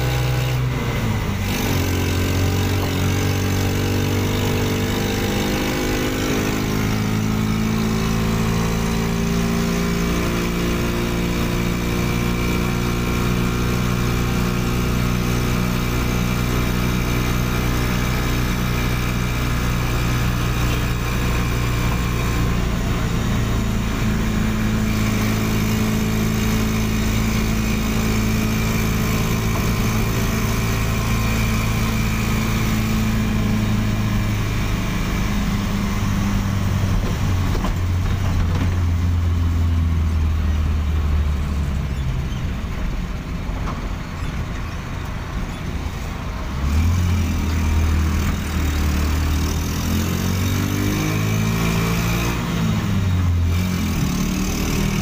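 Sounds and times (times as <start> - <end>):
small car engine running: 0.0 - 55.0.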